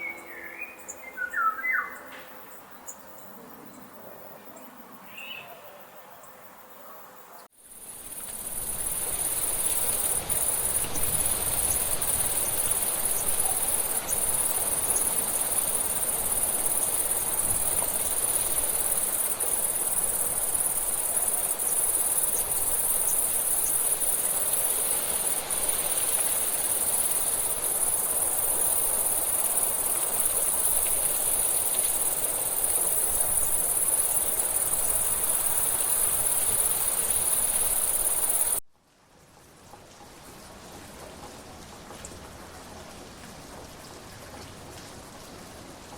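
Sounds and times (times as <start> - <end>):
bird chirp: 0.0 - 3.9
insects chirring chorus: 7.6 - 38.6.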